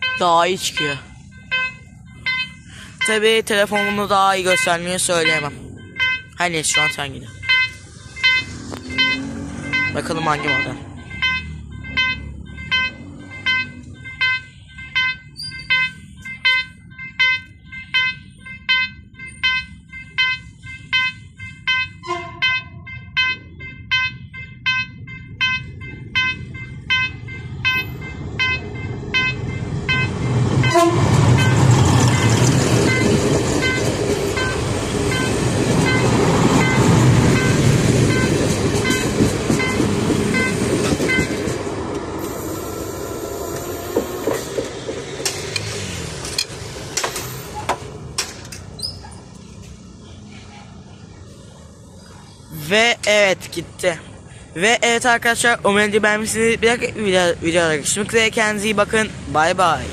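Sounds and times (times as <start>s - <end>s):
level-crossing warning bell: 0.0s - 47.6s
train rumble and wheel clatter: 0.0s - 59.9s
train horn blast: 22.0s - 22.7s, 29.2s - 33.0s.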